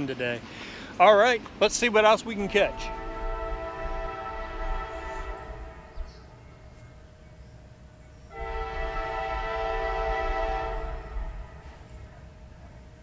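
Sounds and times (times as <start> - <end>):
low rumble of train: 0.0 - 13.0
locomotive air horn blast: 2.4 - 6.4, 8.3 - 12.0.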